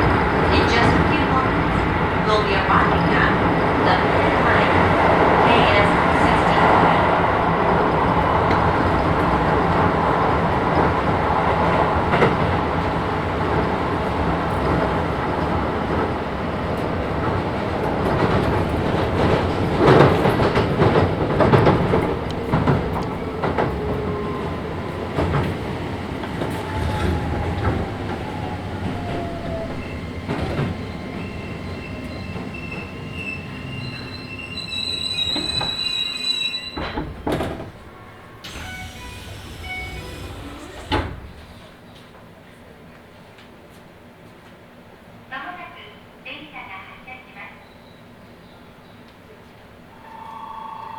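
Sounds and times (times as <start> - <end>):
train rolling on rails: 0.0 - 45.3
rail-joint clicks: 14.4 - 35.9, 36.7 - 42.2
wheel squeal: 23.9 - 37.6, 38.4 - 41.8
falling motor whine: 38.4 - 41.6.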